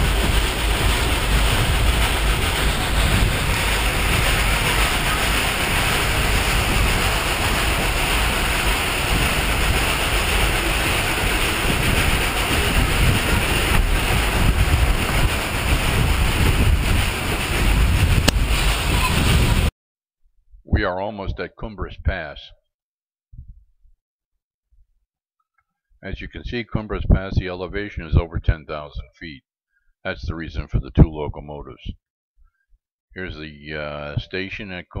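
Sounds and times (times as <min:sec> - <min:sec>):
train rumbling in motion: 0:00.0 - 0:19.7
wind buffeting microphone: 0:00.0 - 0:19.7.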